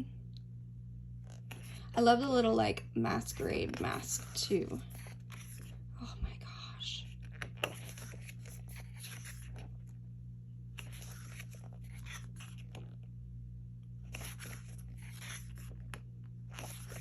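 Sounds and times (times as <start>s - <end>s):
steady low hum: 0.0s - 17.0s
paper pages rustling: 3.3s - 5.8s, 7.1s - 10.0s, 10.7s - 13.1s, 14.0s - 17.0s.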